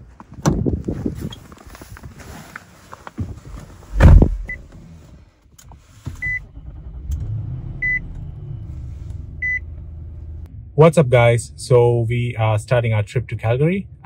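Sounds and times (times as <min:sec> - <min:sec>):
car door shutting: 0:03.2 - 0:04.8
car engine starting and idling: 0:03.7 - 0:14.0.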